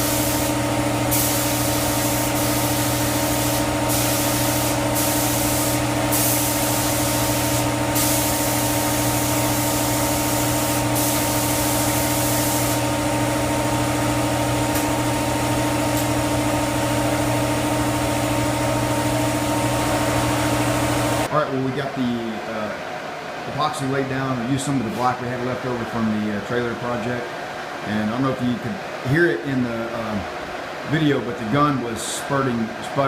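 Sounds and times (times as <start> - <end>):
spray gun hissing: 0.0 - 13.0
steady hum: 0.0 - 33.0.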